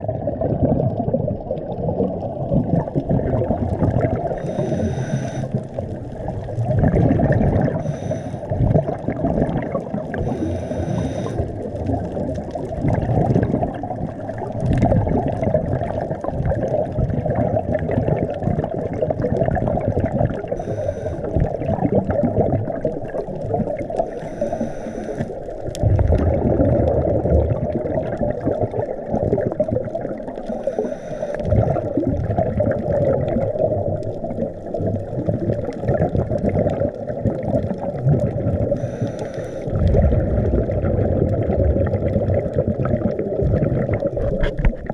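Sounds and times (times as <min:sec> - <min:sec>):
exhaled bubbles rumbling: 0:00.0 - 0:44.9
muffled underwater noise: 0:00.1 - 0:44.9
diver regulator hissing: 0:04.4 - 0:05.6, 0:07.8 - 0:08.5, 0:10.2 - 0:11.5, 0:20.6 - 0:21.4, 0:24.1 - 0:25.4, 0:30.5 - 0:31.5, 0:38.8 - 0:39.7.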